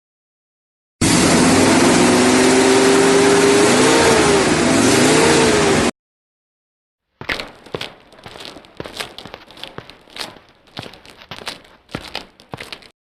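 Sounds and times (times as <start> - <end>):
engine revving: 1.0 - 5.9
rustling: 7.2 - 13.0.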